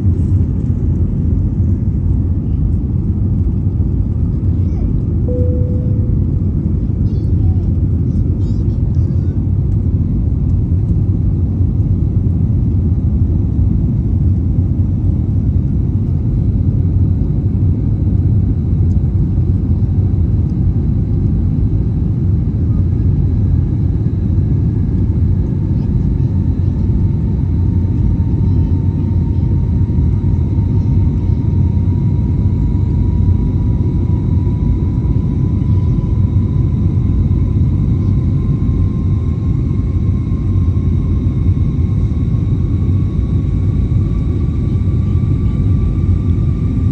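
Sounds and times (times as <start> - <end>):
jet engines rumbling in cabin: 0.0 - 46.9
faint rising whine: 5.3 - 6.8.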